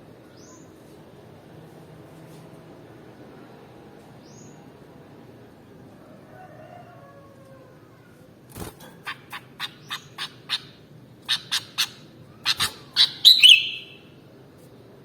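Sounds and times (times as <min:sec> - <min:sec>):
bird warbled phrase: 0:11.3 - 0:14.0
bird calling sharp notes: 0:11.3 - 0:14.1.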